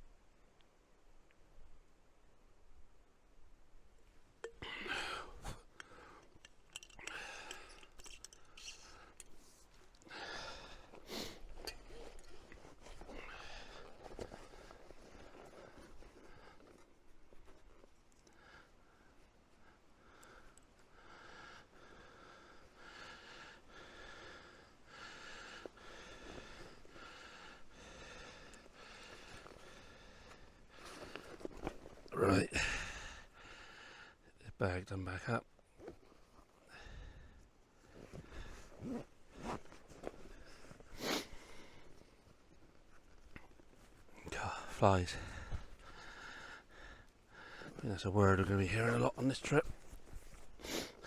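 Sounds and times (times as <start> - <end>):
person breathing out heavily: 4.5 - 6.2
person breathing heavily: 4.5 - 9.3, 10.0 - 14.9, 20.0 - 31.4, 32.5 - 34.2, 44.4 - 47.8.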